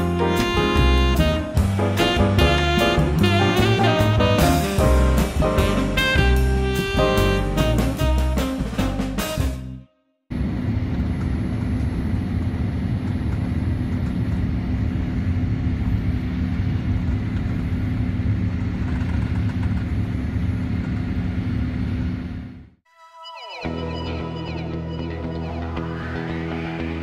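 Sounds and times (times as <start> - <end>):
airliner cabin drone: 10.3 - 22.8.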